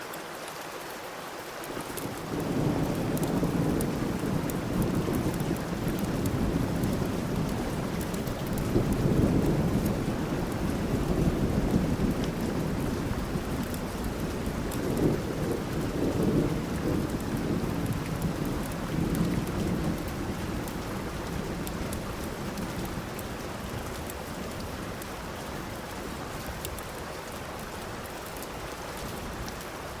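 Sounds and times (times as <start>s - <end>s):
steady rain: 0.0s - 30.0s
low rolling thunder: 2.1s - 25.4s.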